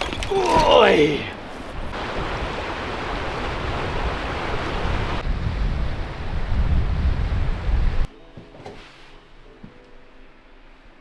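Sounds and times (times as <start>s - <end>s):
wind blowing across microphone: 1.0s - 8.1s.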